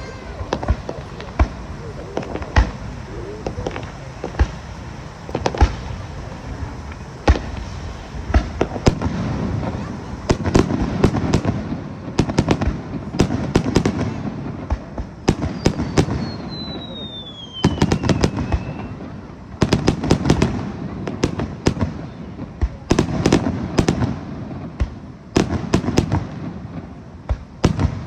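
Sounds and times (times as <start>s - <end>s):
firework shells bursting: 0.0s - 19.0s.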